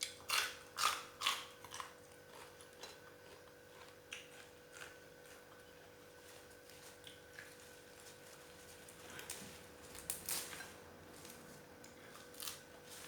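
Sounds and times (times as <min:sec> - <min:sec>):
crunchy bites and chewing: 0:00.0 - 0:05.7, 0:11.9 - 0:12.9.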